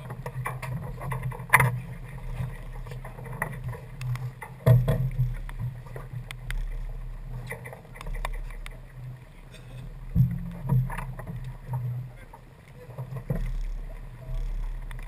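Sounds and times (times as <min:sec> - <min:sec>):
low rumble of yacht under way: 0:00.0 - 0:15.0
clicks and knocks of gear: 0:10.2 - 0:15.0.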